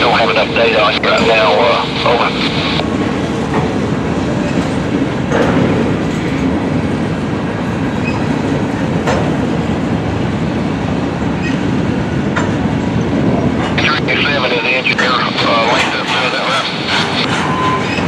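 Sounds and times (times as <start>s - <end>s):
freight train wheels rolling: 2.8s - 13.8s.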